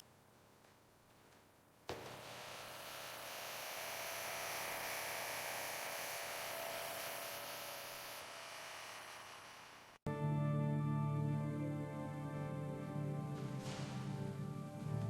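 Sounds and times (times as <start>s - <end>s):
steady hiss: 0.0s - 10.0s
faint hum: 1.9s - 15.0s.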